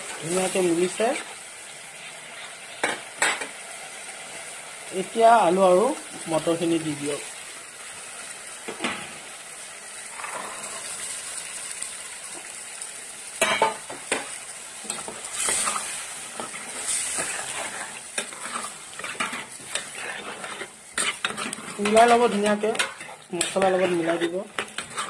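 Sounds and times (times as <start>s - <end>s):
vegetables sizzling in a pan: 0.0s - 25.0s
spoon scraping a pan: 13.4s - 25.0s.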